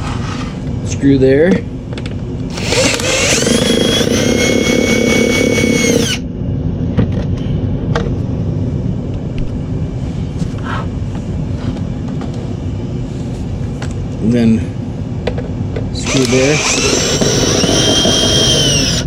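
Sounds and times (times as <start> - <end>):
cordless drill whining: 2.5 - 6.2, 16.0 - 19.0.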